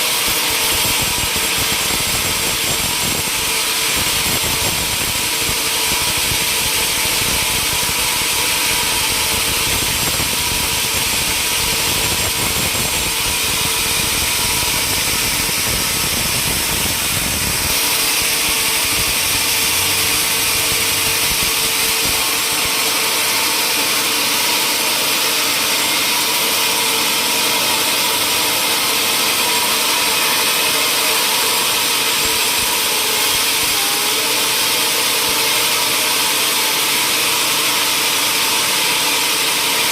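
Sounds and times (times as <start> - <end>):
machinery hum: 0.0 - 38.0
sawmill machinery hissing: 0.0 - 39.9.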